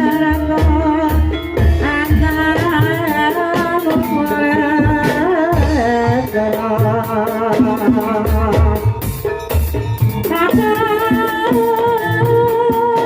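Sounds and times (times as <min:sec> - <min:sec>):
person singing: 0:00.0 - 0:09.0, 0:10.2 - 0:13.0
metallic percussion strikes: 0:00.0 - 0:13.0
gamelan music: 0:08.2 - 0:12.5.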